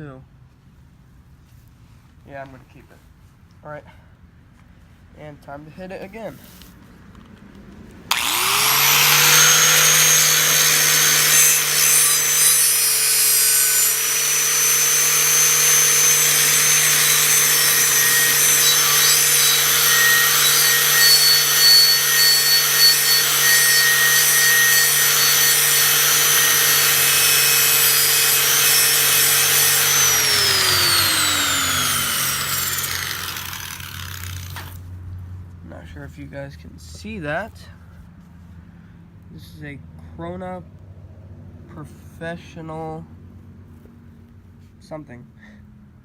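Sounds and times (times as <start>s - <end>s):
grinder motor hum: 8.1s - 34.8s
grinder spinning down: 8.1s - 34.8s
wire wheel scraping rust: 8.1s - 34.8s.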